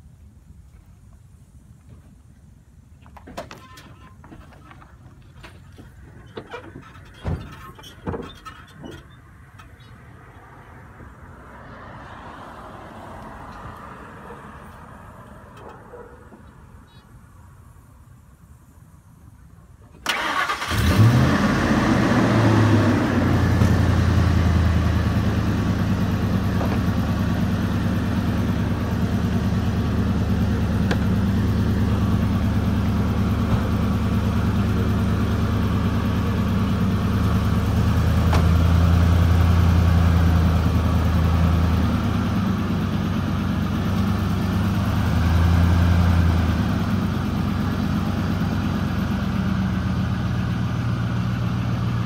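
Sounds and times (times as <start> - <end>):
pickup truck engine idling: 20.0 - 52.0.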